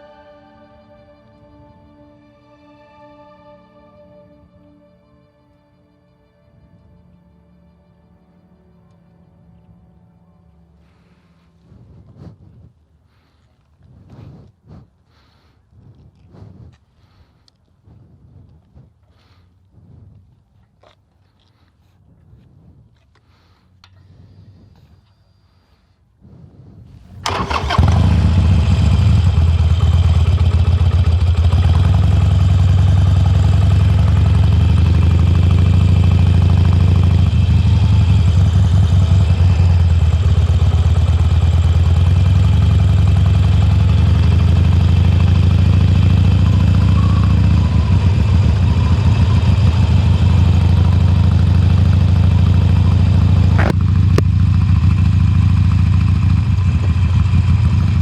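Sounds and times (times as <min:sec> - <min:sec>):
motorcycle engine idling: 0:26.9 - 0:58.0.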